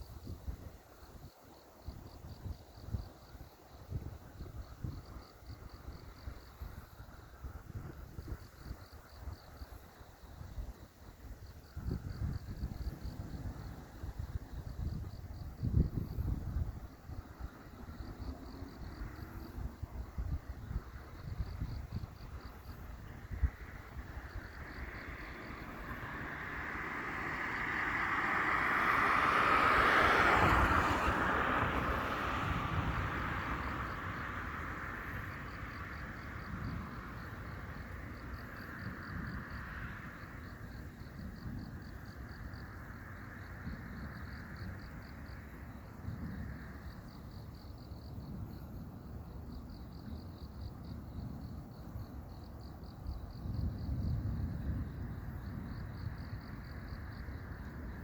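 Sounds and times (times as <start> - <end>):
low wind rumbles: 0.0 - 58.0
vehicle passing: 24.6 - 35.7.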